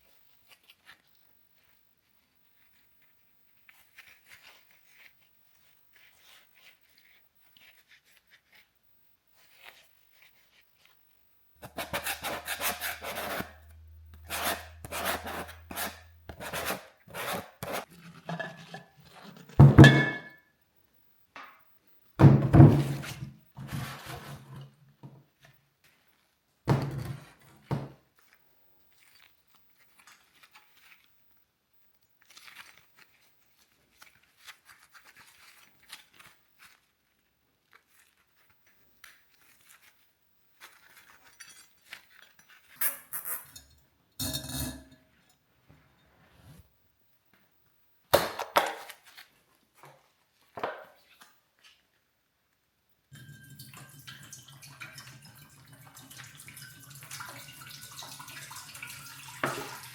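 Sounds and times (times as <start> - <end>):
scraping and rubbing: 11.6 - 19.6.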